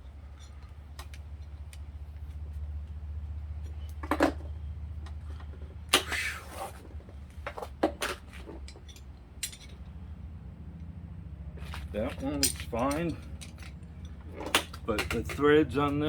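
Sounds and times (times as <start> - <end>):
scraping rustle: 6.0 - 8.9
metal parts clinking: 8.1 - 10.0, 11.6 - 16.0.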